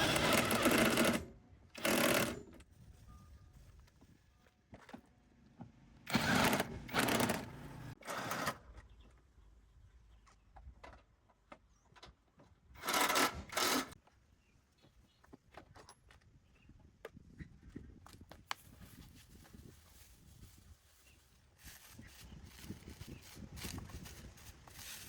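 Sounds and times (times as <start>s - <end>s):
power tool rattling: 0.0s - 2.6s, 6.1s - 8.5s, 12.8s - 14.0s.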